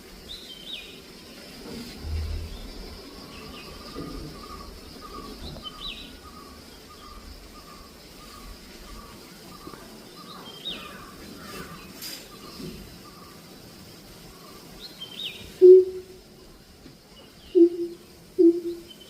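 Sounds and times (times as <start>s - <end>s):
higher bird chirps: 14.4s - 16.2s, 17.2s - 19.0s
bird repeating short notes: 15.6s - 16.2s, 17.6s - 18.8s.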